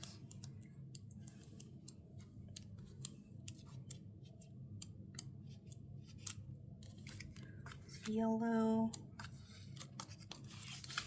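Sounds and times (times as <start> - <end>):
paper pages clicking and turning: 2.5 - 8.2, 8.9 - 11.0.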